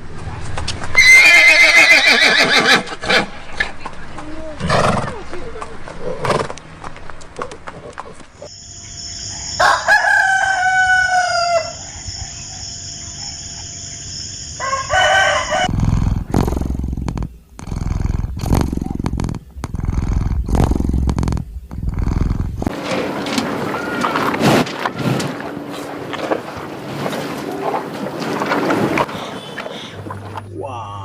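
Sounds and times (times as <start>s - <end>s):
rooster crowing: 9.4s - 12.2s, 14.6s - 15.7s
rough low rumbling noise: 15.6s - 31.0s.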